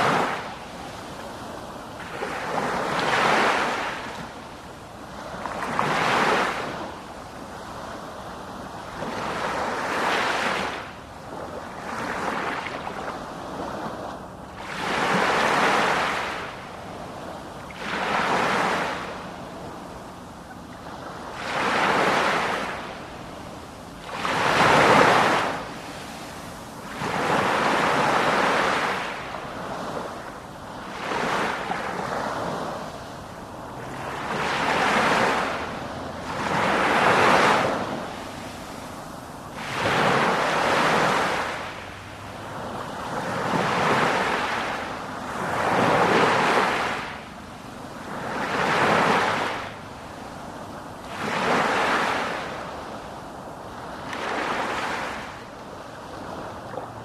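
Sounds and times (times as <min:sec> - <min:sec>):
sea waves breaking: 0:00.0 - 0:57.0.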